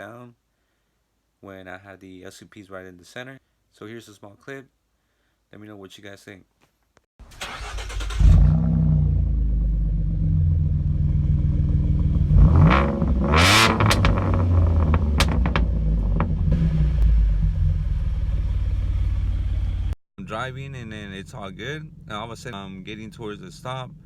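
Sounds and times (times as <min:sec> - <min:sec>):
car engine exhaust revving: 0:07.8 - 0:20.0.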